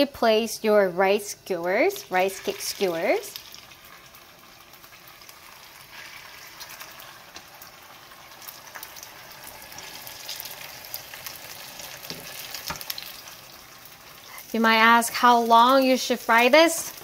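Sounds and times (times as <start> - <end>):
rice cakes sizzling in oil: 0.0 - 17.0
oil popping and crackling: 2.2 - 14.4.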